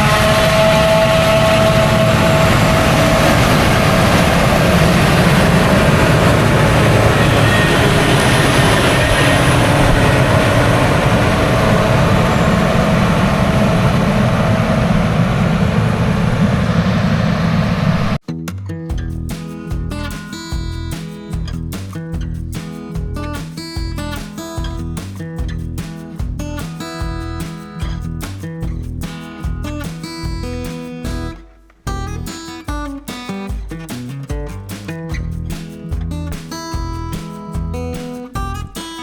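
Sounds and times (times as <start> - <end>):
thin steady whine: 0.0 - 18.2
tractor engine and mower din: 0.0 - 18.2.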